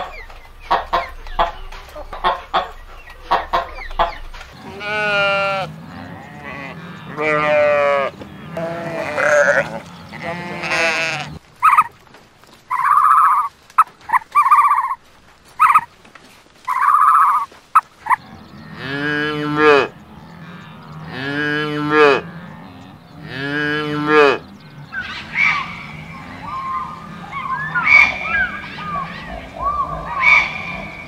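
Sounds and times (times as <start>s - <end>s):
cattle mooing: 0.0s - 11.9s, 18.1s - 31.0s
sheep bleating: 0.7s - 11.9s, 18.1s - 31.0s
short gliding high calls: 24.9s - 31.0s.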